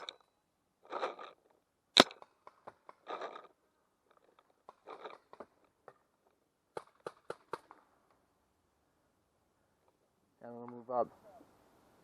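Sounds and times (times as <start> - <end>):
paintball markers firing: 6.7 - 7.9.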